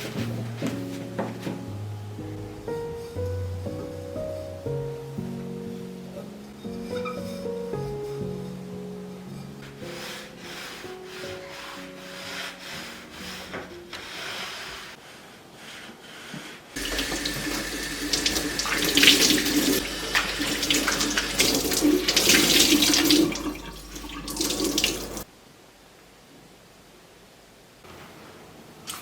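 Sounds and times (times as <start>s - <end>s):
faint music: 0.0s - 15.7s
water running into sink: 16.8s - 25.3s.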